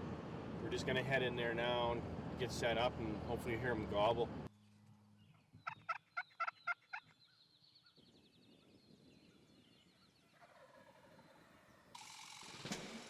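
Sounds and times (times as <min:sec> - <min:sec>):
wild turkey gobbling: 0:05.6 - 0:07.1.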